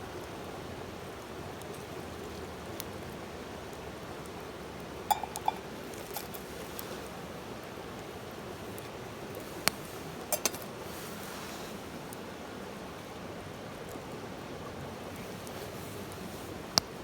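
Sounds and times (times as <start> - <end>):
steady hiss: 0.0 - 17.0
coffee gear clinking: 5.1 - 6.4.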